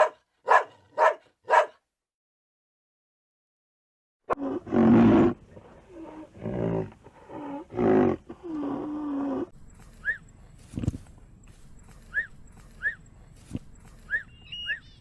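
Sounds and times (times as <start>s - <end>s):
short high chirps: 9.7s - 10.7s, 11.4s - 15.0s
animal calling loudly: 13.9s - 15.0s.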